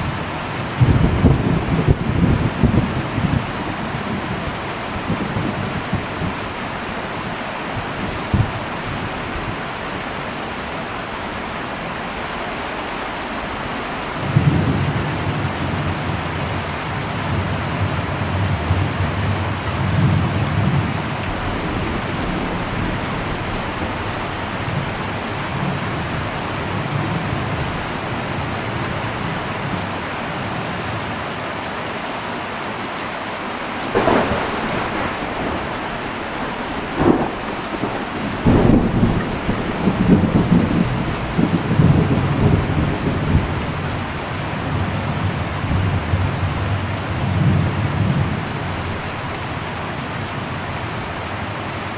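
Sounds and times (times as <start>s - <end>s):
rumble of thunder: 0.0s - 9.6s, 14.1s - 29.9s, 33.8s - 49.6s
heavy rain on a metal roof: 0.0s - 51.9s
sharp thunder cracks: 33.8s - 43.9s.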